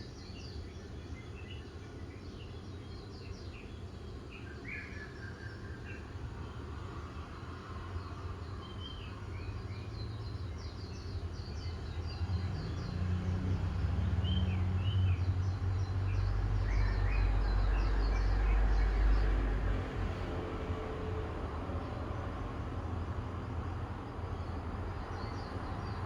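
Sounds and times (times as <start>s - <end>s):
small birds chirping: 7.9s - 19.3s, 24.0s - 26.0s
vehicle engine rumble: 8.2s - 26.0s.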